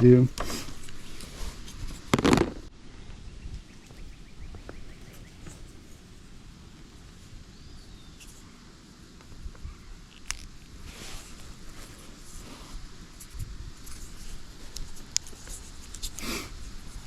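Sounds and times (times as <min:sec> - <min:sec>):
outdoor background noise: 0:00.0 - 0:17.0
handling thump: 0:02.1 - 0:02.7
faint bird chirps: 0:02.9 - 0:06.0, 0:07.3 - 0:08.7.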